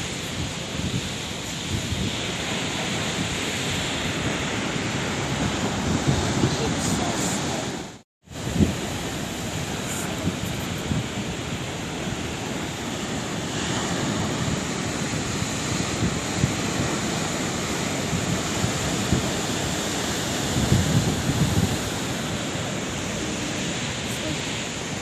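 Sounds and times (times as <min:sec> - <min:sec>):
sea waves breaking: 0:00.0 - 0:25.0.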